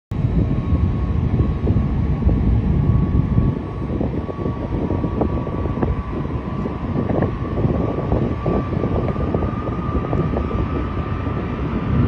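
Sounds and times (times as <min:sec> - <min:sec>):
jet engines rumbling and whining: 0:00.1 - 0:12.0.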